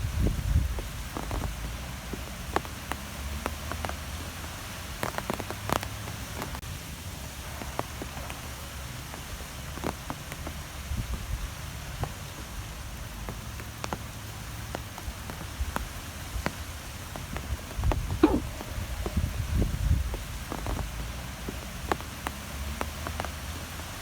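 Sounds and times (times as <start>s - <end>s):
low wind rumble: 0.0s - 5.1s, 14.5s - 22.9s.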